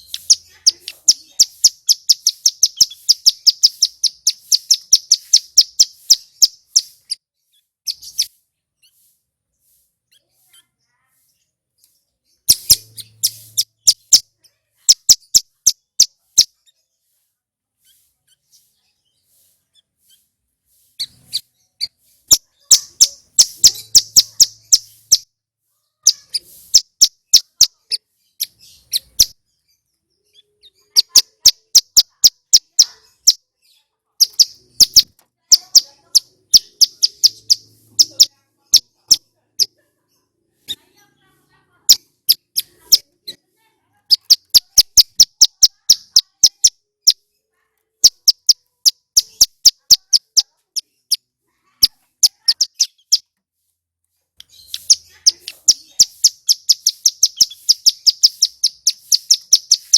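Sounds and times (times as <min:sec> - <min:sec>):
bird singing sharp chirps: 0:00.0 - 0:10.6, 0:12.3 - 0:16.8, 0:20.8 - 0:25.3, 0:34.2 - 0:39.7, 0:44.1 - 0:47.2, 0:54.4 - 0:59.9.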